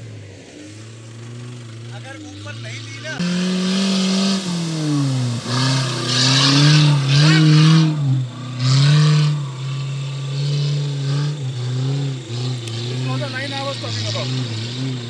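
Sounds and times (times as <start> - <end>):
car engine revving hard: 0.0 - 15.0
bursts of rushing noise: 3.2 - 8.2.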